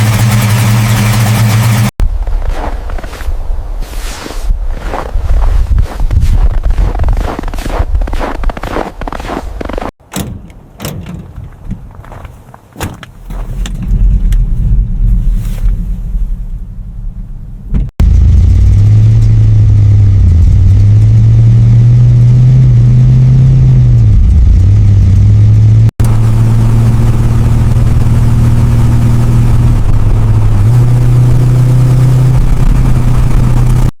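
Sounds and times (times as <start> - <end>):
car engine idling: 0.0 - 1.9, 24.1 - 33.9
low rumble with clicks: 4.7 - 33.9.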